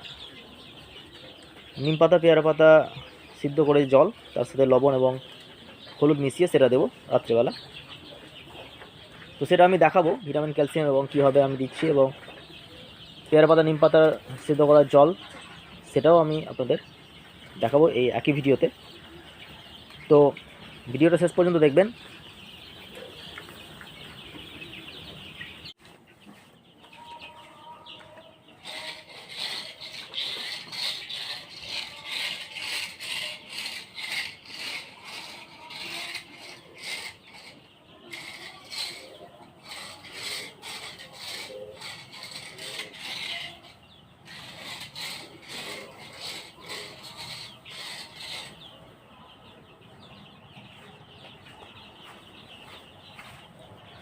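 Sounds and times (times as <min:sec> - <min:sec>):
chicks cheeping: 0:00.0 - 0:54.0
repeated scraping: 0:25.8 - 0:48.9.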